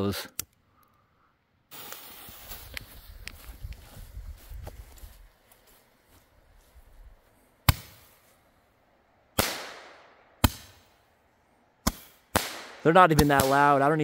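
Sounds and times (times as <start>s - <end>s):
firework hiss: 1.7s - 3.2s.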